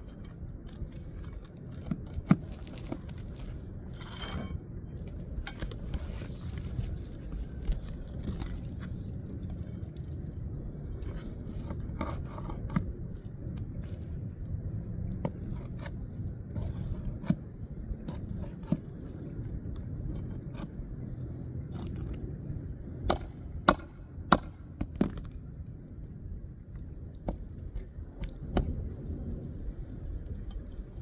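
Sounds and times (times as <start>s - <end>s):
pry bar scraping: 15.3s - 20.8s, 23.1s - 25.2s
metal-on-metal strikes ringing: 23.1s - 25.0s.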